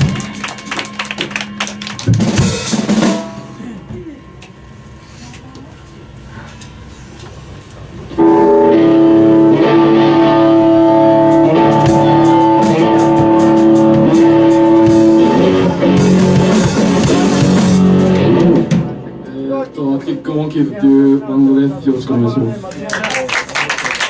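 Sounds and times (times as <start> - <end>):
rock band music: 0.0 - 3.8, 8.2 - 19.3.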